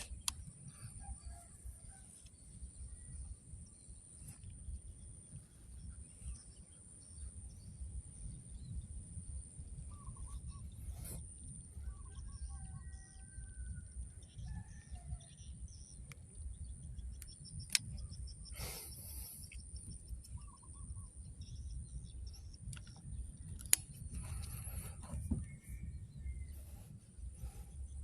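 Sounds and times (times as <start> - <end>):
sharp clicks: 0.0 - 0.6, 17.1 - 18.2, 22.6 - 24.7
small birds chirping: 0.0 - 13.3, 14.0 - 28.0
low wind rumble: 0.0 - 28.0.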